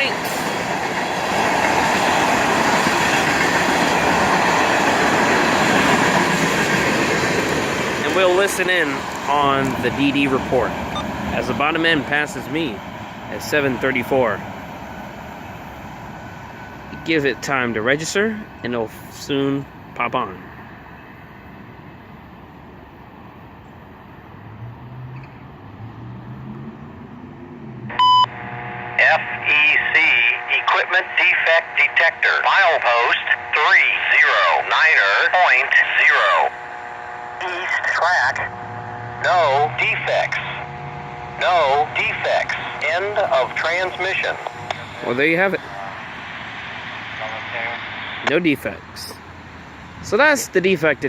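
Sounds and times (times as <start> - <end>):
steel wheels on rail: 0.0 - 11.3
freight train rolling past: 0.0 - 51.0
outdoor background noise: 0.0 - 51.0
low vehicle engine drone: 3.3 - 51.0.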